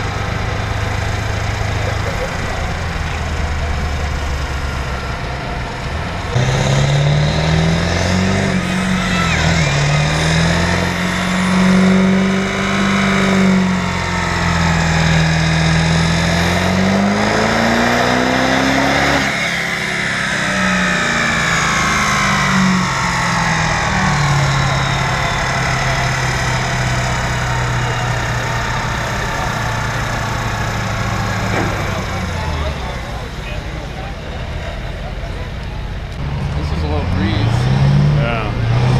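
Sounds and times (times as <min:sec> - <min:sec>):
diesel truck engine revving: 0:00.0 - 0:38.9.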